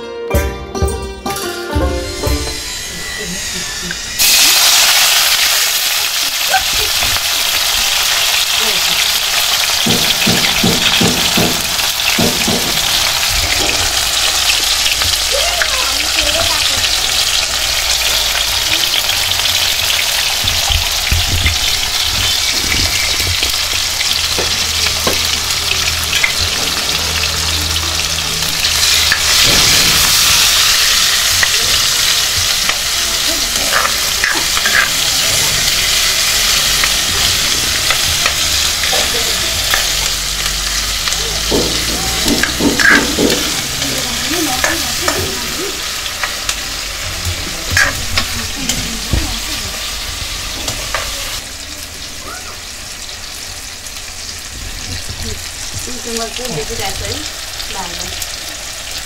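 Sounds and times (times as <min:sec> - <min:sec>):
vegetables sizzling in hot oil: 0:02.1 - 0:59.0
metal ladle scraping pan: 0:33.6 - 0:40.4, 0:42.3 - 0:45.2.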